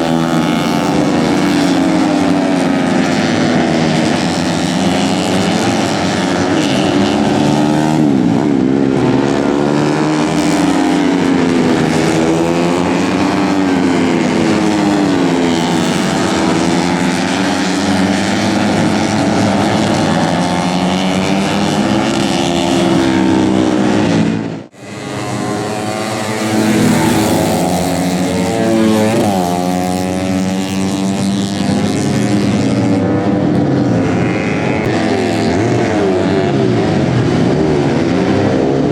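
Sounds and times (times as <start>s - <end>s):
racing motorcycle engines revving: 0.0s - 38.9s.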